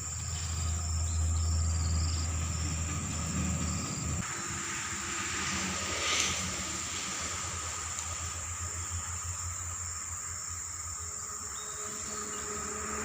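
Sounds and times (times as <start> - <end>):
low rumble: 0.0 - 9.8
insect drone: 0.0 - 13.0.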